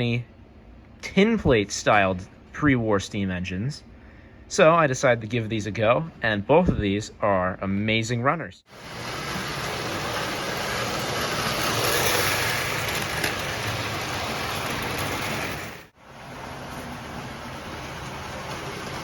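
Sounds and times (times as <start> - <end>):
model train motor whirring: 8.7 - 15.9.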